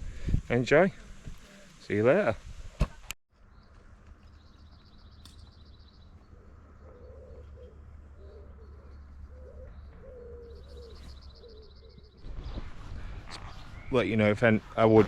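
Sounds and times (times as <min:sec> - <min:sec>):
dove cooing: 0:06.2 - 0:12.1.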